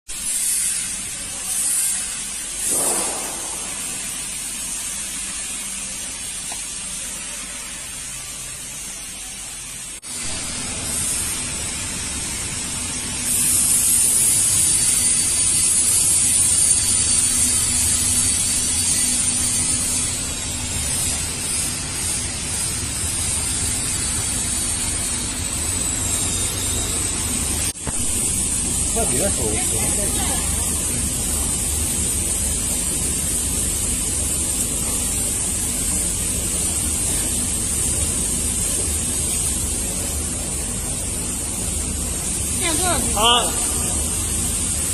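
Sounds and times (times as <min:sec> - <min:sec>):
machine hiss: 0:00.1 - 0:44.9
low machine hum: 0:16.0 - 0:44.9.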